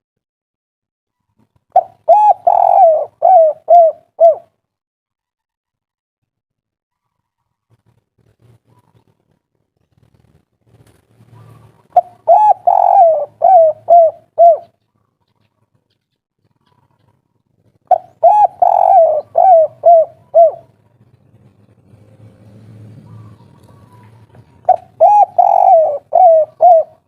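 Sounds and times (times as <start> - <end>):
dove cooing: 1.7 - 4.6, 11.2 - 15.8, 17.8 - 27.0.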